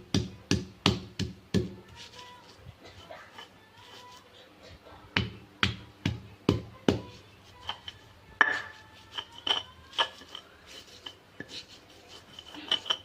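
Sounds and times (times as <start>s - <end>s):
utensil clinking against dish: 7.6s - 13.0s.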